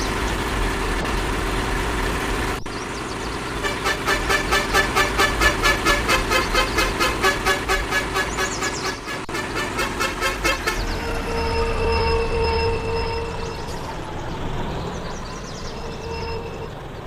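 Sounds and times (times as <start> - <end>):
vehicle horn: 3.6 - 13.9, 15.7 - 16.9
pulsing pitched tones: 3.6 - 17.0.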